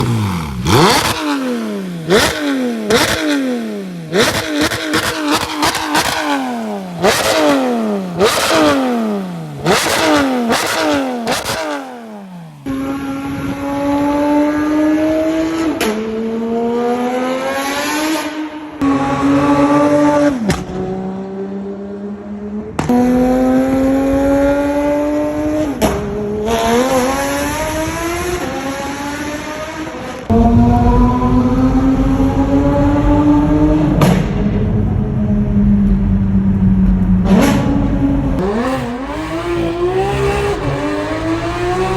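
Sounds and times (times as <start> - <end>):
car accelerating through gears: 0.0 - 41.9
sports car engine revving: 0.0 - 41.9
exhaust crackling pops: 20.4 - 20.9.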